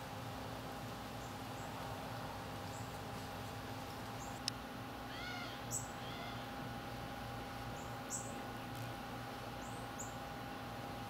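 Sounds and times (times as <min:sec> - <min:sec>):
steady hum: 0:00.0 - 0:11.0
small birds chirping: 0:02.6 - 0:04.5, 0:05.1 - 0:06.5, 0:07.6 - 0:10.3.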